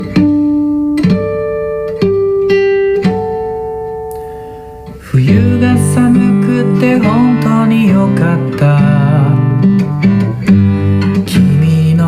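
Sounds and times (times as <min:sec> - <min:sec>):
guitar picked single notes: 0:00.0 - 0:12.0
strummed guitar chord: 0:00.0 - 0:12.0.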